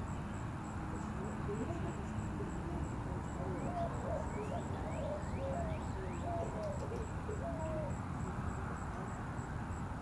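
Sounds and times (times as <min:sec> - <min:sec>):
birds whistling and cooing: 0:00.9 - 0:08.0.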